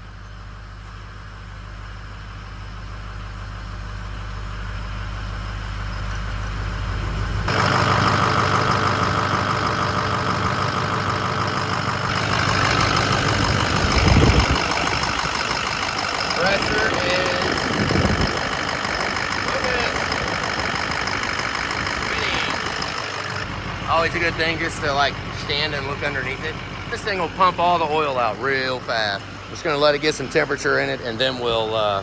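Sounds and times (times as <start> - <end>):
diesel engine idling: 0.0 - 32.0
low rumble: 9.5 - 31.6.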